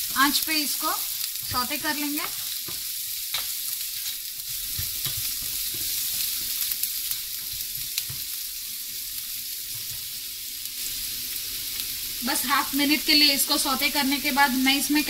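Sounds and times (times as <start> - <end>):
vegetables sizzling in a frying pan: 0.0 - 15.0
spatula scraping and knocking pan: 1.4 - 8.3.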